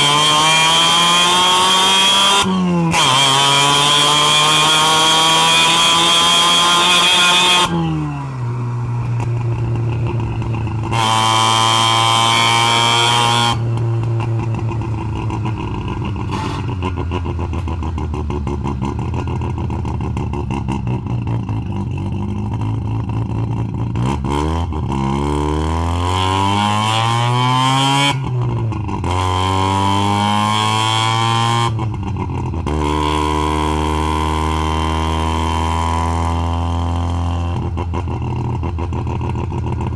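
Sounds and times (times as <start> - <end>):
rotary engine revving: 0.0 - 19.2.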